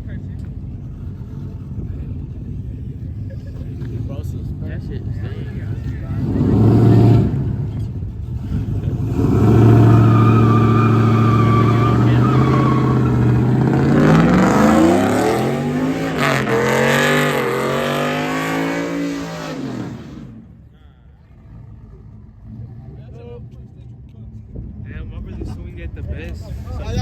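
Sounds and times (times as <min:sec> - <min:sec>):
pickup truck engine revving: 0:00.8 - 0:20.6.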